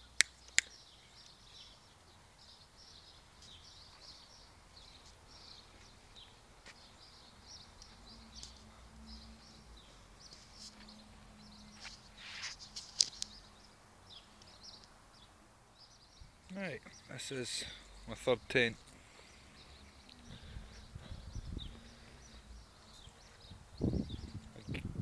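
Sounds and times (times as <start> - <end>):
small birds chirping: 0.0 - 25.0
brief rustle: 11.8 - 13.3.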